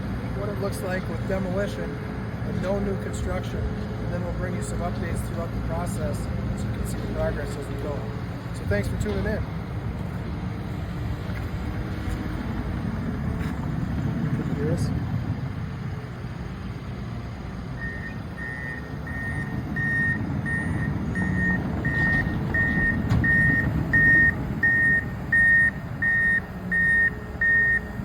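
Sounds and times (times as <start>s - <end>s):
heavy vehicle engine rumbling: 0.0s - 28.0s
reversing alarm beeping: 17.8s - 28.0s.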